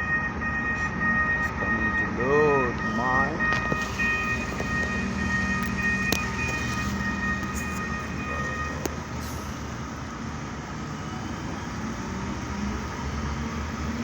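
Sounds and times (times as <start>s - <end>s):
heavy diesel machinery running: 1.5s - 14.0s
high whine: 2.6s - 9.9s
rain: 2.8s - 14.0s.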